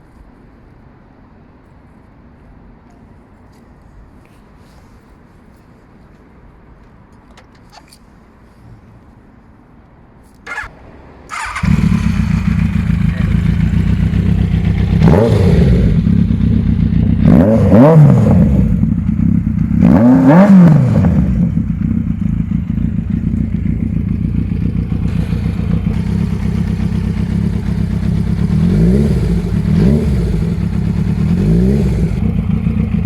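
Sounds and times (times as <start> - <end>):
motorcycle engine idling and revving: 10.4 - 33.0.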